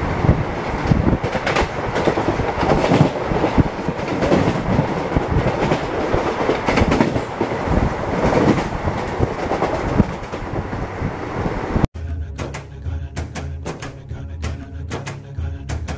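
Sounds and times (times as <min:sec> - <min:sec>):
wheels clattering over rail joints: 0:00.0 - 0:11.0
train rolling on track: 0:00.0 - 0:15.9
background music: 0:12.0 - 0:15.9.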